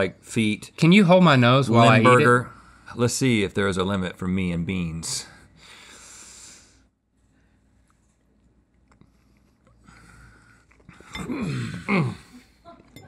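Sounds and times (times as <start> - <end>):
man speaking: 0.0 - 5.4
quiet chewing with clicks: 7.8 - 11.2.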